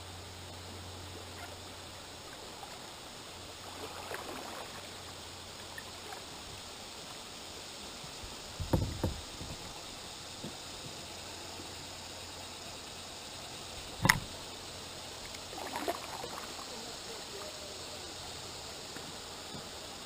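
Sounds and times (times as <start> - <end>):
paddle strokes and water splashing: 0.0 - 20.0
knocks against kayak: 8.6 - 9.7, 14.0 - 14.3.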